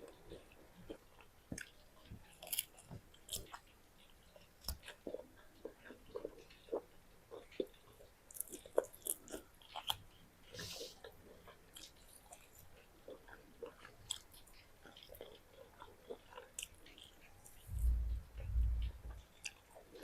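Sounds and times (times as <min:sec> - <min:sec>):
chewing food: 0:00.0 - 0:20.0.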